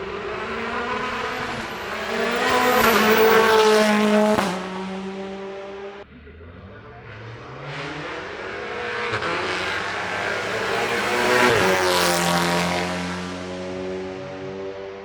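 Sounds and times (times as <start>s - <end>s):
race car accelerating: 0.0s - 15.0s.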